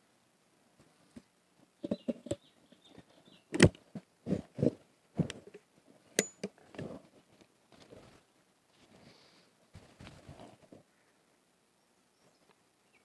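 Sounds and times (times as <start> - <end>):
shotgun metal clicks and knocks: 6.2 - 6.6.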